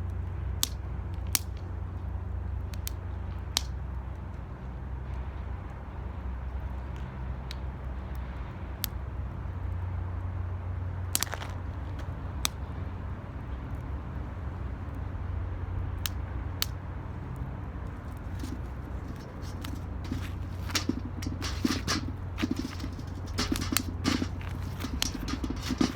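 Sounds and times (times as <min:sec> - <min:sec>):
fire low rumble: 0:16.0 - 0:25.9
wood fire crackling pops: 0:18.2 - 0:25.9.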